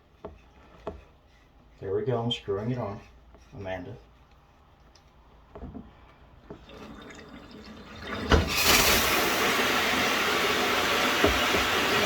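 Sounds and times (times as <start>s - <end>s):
shower spraying with loud hiss: 8.5s - 12.0s
knock: 11.2s - 11.9s.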